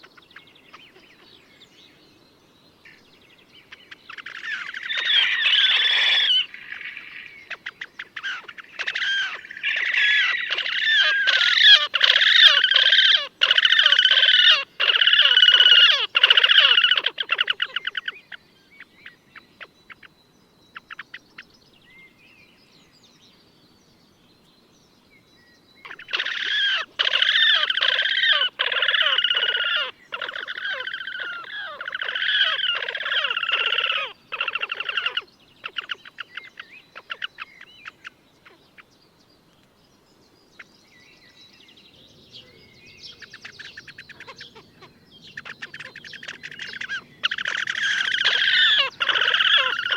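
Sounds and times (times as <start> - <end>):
grebe rapid trilling: 8.2 - 18.0, 26.0 - 35.2, 45.4 - 49.9.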